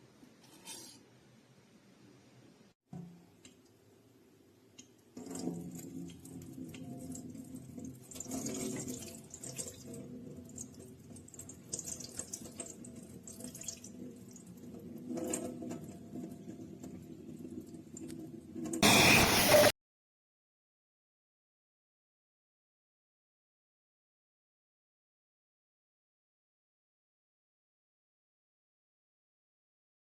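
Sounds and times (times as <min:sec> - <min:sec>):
water dripping: 0:04.8 - 0:14.4
loud rush of noise: 0:18.8 - 0:19.7.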